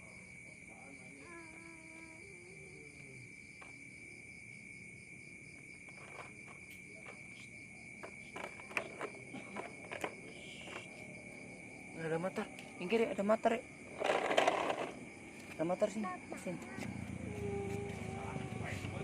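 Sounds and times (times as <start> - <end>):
insect trilling: 0.0 - 3.5, 4.9 - 19.0.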